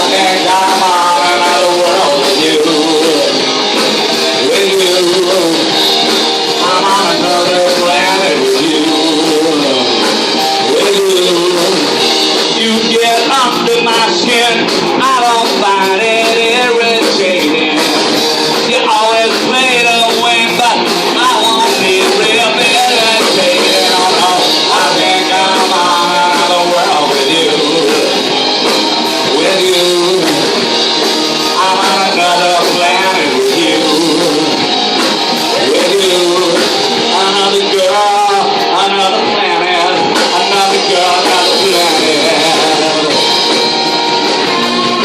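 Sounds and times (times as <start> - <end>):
electric guitar: 0.0 - 45.0
live rock band playing: 0.0 - 45.0
person singing: 0.0 - 45.0.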